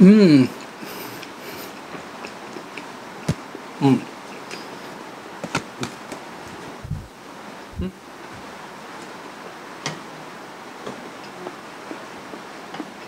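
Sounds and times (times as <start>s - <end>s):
steady hiss: 0.0s - 13.0s
soft chewing: 0.5s - 7.0s
low thumps: 6.8s - 7.1s.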